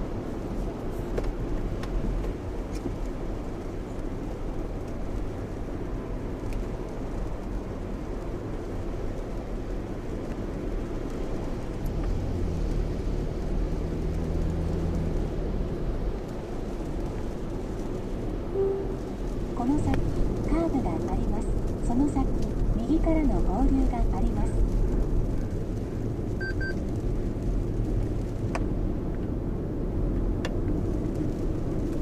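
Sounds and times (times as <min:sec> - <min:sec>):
road and tyre noise in car cabin: 0:00.0 - 0:32.0
low drone: 0:18.5 - 0:19.9.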